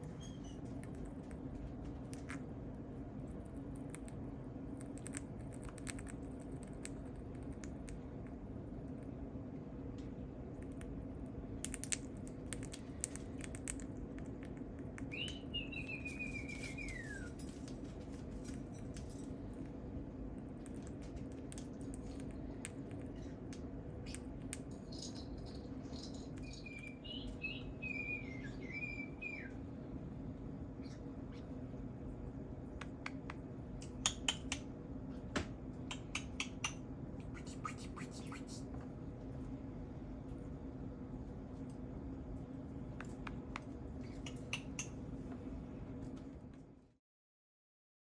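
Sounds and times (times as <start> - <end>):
steady hum: 0.0 - 46.6
whistled bird-like chirping: 15.1 - 17.4, 26.4 - 29.6.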